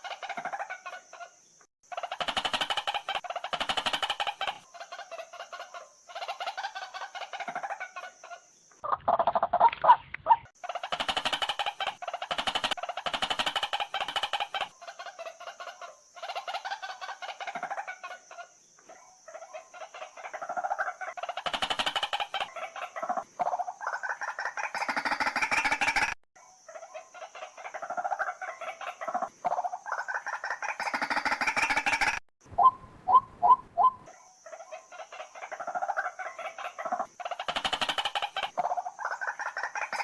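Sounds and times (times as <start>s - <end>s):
waterhen calling rapid notes: 1.9s - 4.7s, 8.8s - 14.8s, 20.4s - 26.2s, 27.8s - 34.1s, 35.5s - 40.0s.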